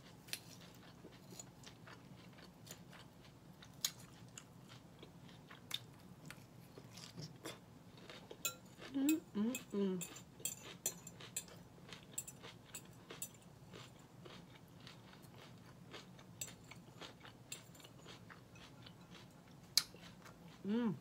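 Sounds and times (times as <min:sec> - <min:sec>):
person chewing salad: 0:00.0 - 0:21.0
person humming: 0:08.9 - 0:10.1, 0:20.6 - 0:21.0.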